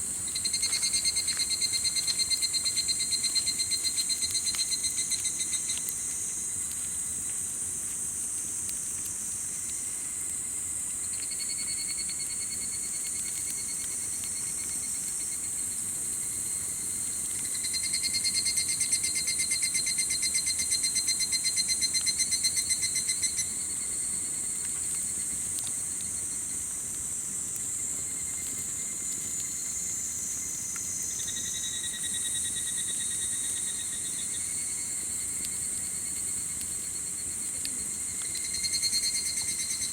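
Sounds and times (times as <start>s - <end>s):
insects trilling in chorus: 0.0s - 6.9s, 11.0s - 39.9s
faint campfire crackles: 0.0s - 39.9s.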